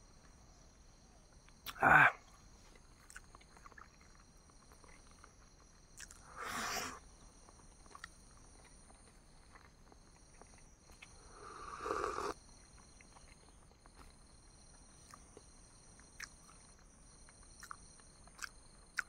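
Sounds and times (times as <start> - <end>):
soft chewing clicks: 2.7 - 6.3, 7.4 - 11.3, 12.6 - 19.0.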